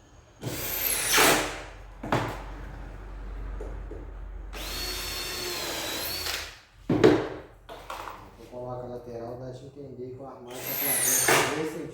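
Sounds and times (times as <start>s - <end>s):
power drill driving screws: 0.4s - 1.6s, 4.5s - 6.6s, 10.5s - 11.6s.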